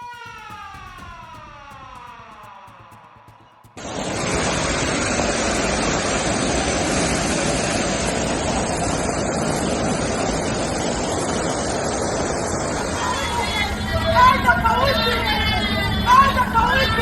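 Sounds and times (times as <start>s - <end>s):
rushing floodwater: 3.8s - 14.1s.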